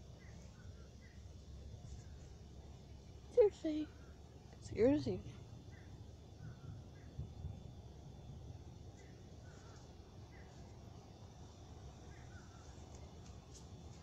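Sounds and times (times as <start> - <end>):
low steady rumble: 0.0 - 14.0
faint bird chirps: 3.9 - 7.7, 8.8 - 13.2.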